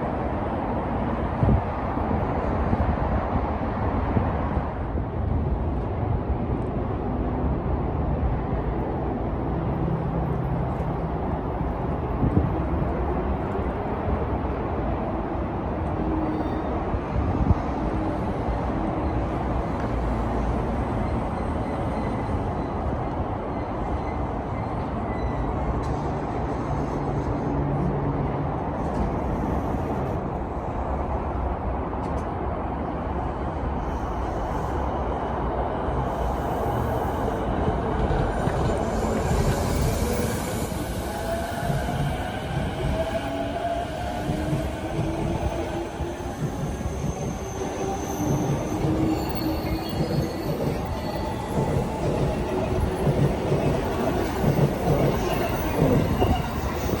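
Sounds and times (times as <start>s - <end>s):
train low rumble: 0.0s - 57.0s
wind noise on microphone: 0.4s - 6.9s, 11.4s - 13.0s, 16.8s - 18.8s, 36.3s - 57.0s.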